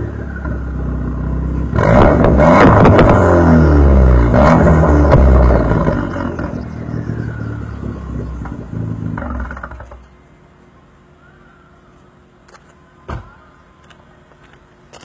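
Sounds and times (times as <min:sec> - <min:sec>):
car engine through loud exhaust: 0:00.0 - 0:11.2.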